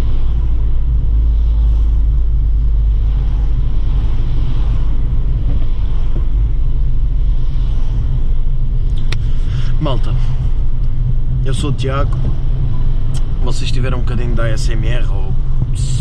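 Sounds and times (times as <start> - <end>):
car engine driving steadily: 0.0 - 16.0
road rumble: 0.0 - 16.0.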